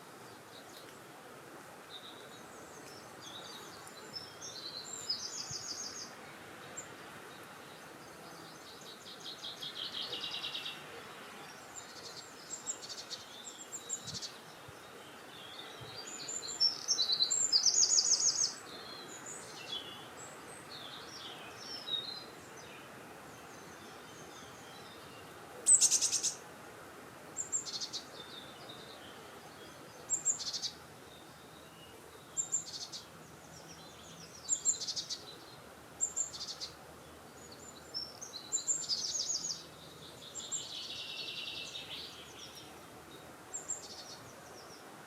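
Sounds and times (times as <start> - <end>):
songbirds trilling: 1.8 - 26.5, 27.4 - 45.0
wind hiss: 9.0 - 31.1.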